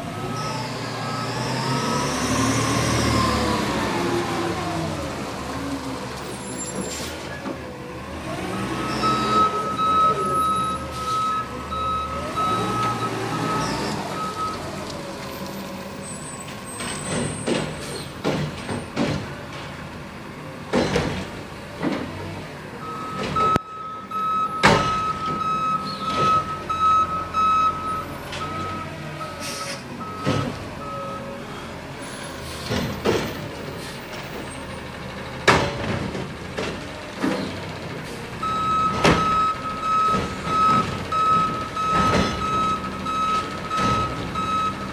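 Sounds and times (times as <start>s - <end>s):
reversing alarm beeping: 8.8s - 14.6s, 22.8s - 31.3s, 38.4s - 44.9s.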